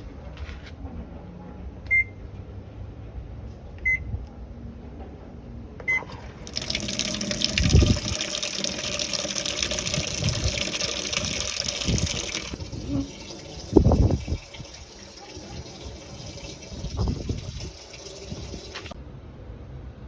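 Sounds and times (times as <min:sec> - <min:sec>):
tap water running: 0:05.9 - 0:19.0.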